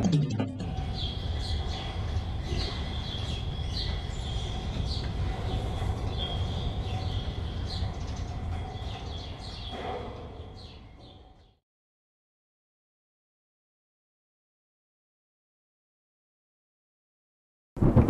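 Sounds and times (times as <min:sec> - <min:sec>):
steady low rumble: 0:00.0 - 0:09.4
birds chirping: 0:00.4 - 0:11.6.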